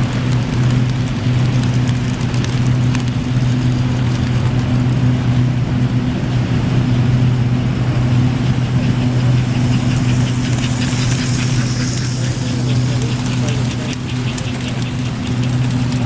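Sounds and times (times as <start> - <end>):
low electrical hum: 0.0 - 16.0
model train wheels clattering: 9.6 - 16.0.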